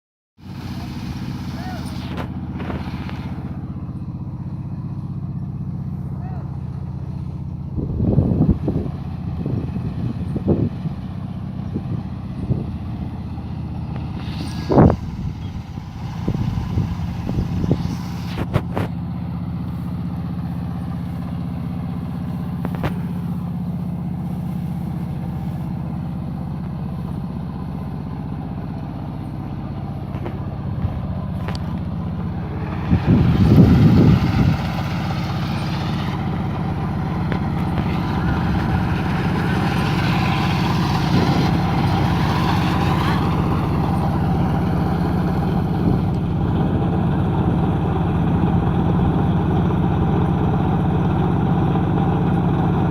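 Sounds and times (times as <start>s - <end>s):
higher rushing noise: 0.4s - 3.8s, 13.7s - 18.9s, 30.0s - 46.2s
combine harvester engine running: 0.4s - 52.9s
loud rush of noise: 31.3s - 46.1s.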